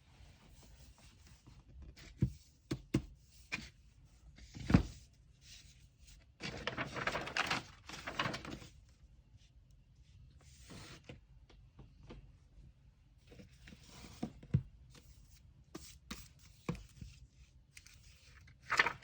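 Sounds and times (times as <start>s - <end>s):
paper rustling and crinkling: 6.4s - 8.9s, 16.0s - 19.0s.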